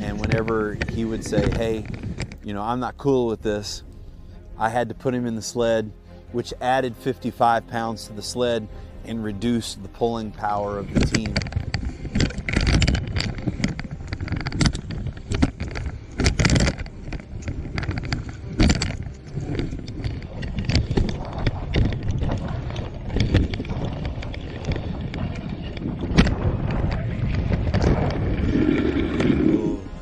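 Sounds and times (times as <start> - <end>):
sled scraping through slush: 0.0 - 3.0, 10.4 - 30.0
wind buffeting microphone: 0.0 - 4.8, 8.7 - 30.0.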